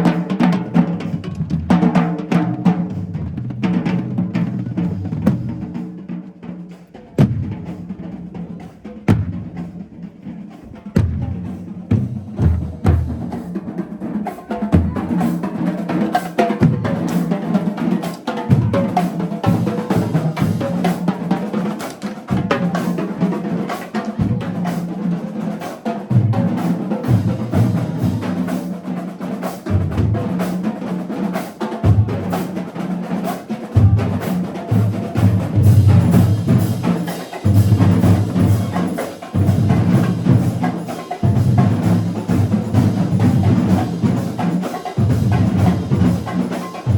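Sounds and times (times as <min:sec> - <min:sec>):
rapid snare drum strokes: 0:00.0 - 0:46.9
heavy bass drums: 0:10.9 - 0:13.5.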